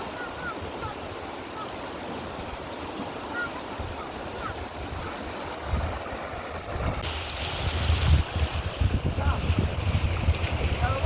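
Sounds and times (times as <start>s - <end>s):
water rushing: 0.0s - 11.0s
wind buffeting microphone: 3.7s - 11.0s
wind rushing: 6.7s - 11.0s.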